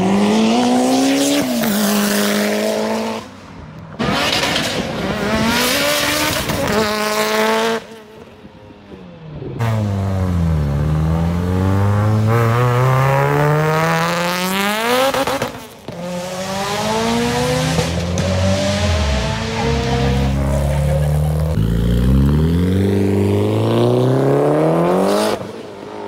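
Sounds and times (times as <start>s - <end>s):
car engine accelerating: 9.3s - 25.7s.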